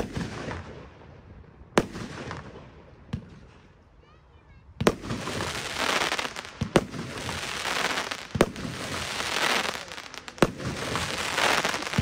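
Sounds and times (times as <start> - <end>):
firework bangs: 4.8 - 12.0
firework crackle: 4.8 - 12.0.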